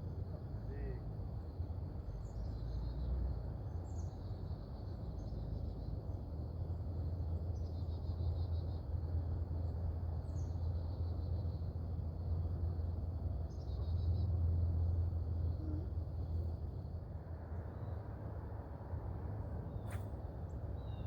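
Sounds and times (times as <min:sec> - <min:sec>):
low outdoor rumble: 0:00.0 - 0:21.0
small birds chirping: 0:02.0 - 0:09.0, 0:13.4 - 0:14.4, 0:19.7 - 0:21.0.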